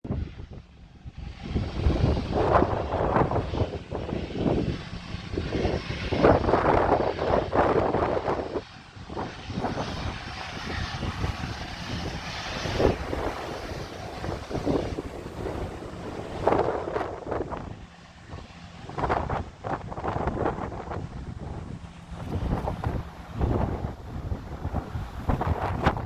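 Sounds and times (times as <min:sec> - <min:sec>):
wind buffeting microphone: 0:00.0 - 0:26.0
jet engines running: 0:00.1 - 0:26.0.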